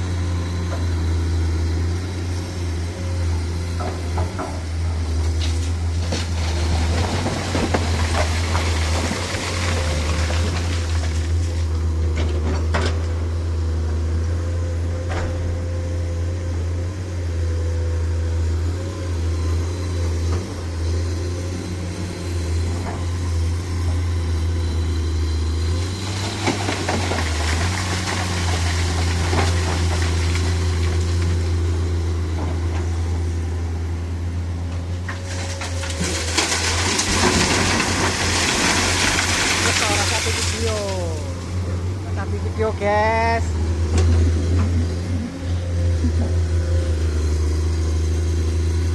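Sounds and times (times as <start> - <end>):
road noise: 0.0 - 48.9
truck engine droning under load: 0.0 - 48.9.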